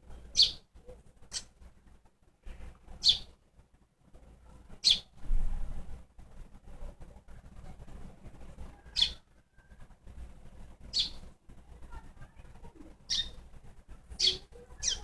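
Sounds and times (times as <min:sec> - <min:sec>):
baby bird chirping: 0:00.2 - 0:01.5, 0:03.0 - 0:03.3, 0:04.8 - 0:05.2, 0:08.9 - 0:09.2, 0:10.9 - 0:11.3, 0:12.9 - 0:13.5, 0:14.1 - 0:15.0.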